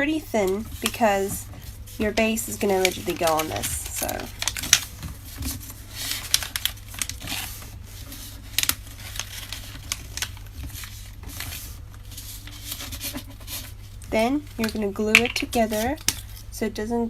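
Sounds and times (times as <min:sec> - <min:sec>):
paper rustling and crinkling: 0:00.4 - 0:16.5
paper creasing clicks: 0:02.1 - 0:04.9, 0:05.6 - 0:11.6.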